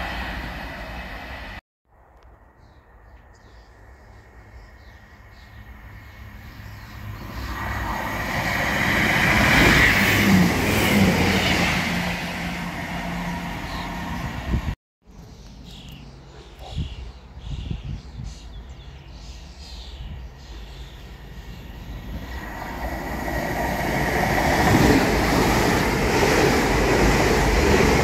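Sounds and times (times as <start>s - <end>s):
diesel train engine: 0.0s - 1.6s, 5.7s - 14.8s, 21.0s - 28.0s
train wheels rumbling on rails: 7.2s - 14.8s, 21.9s - 28.0s.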